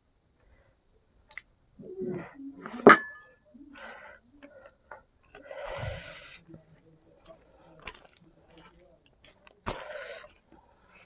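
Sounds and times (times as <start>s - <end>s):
utensil clinking against dish: 2.9s - 3.3s
breathy hissing sound: 5.4s - 6.5s.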